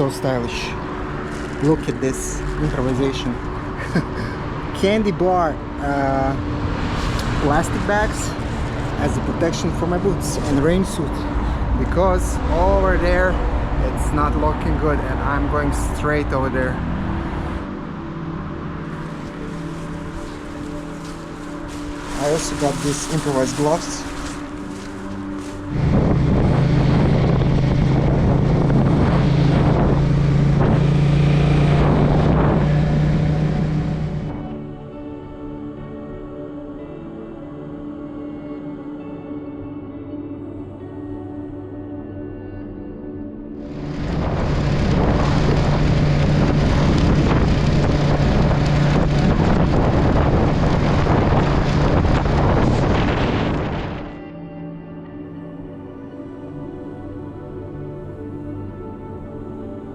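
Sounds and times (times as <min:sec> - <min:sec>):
motorcycle engine hum: 0:16.0 - 0:34.6, 0:43.6 - 0:54.1
wind noise on microphone: 0:18.9 - 0:34.4, 0:43.7 - 0:54.2.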